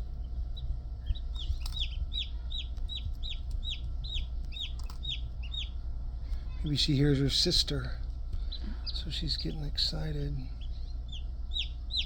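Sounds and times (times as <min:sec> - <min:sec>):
chick peeping: 0:00.2 - 0:05.8, 0:10.6 - 0:12.0.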